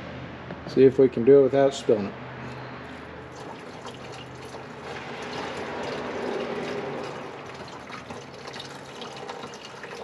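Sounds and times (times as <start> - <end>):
fluid pouring from a jug: 3.3 - 10.0.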